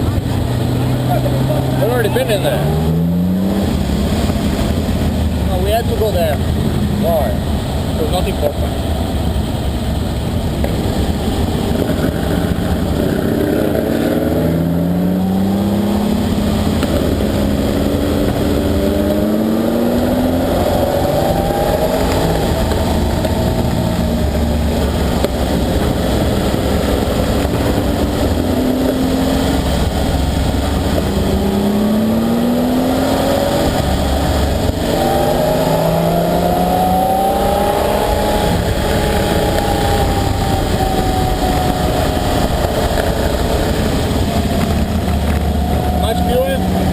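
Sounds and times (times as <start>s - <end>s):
car engine accelerating: 0.0s - 46.9s.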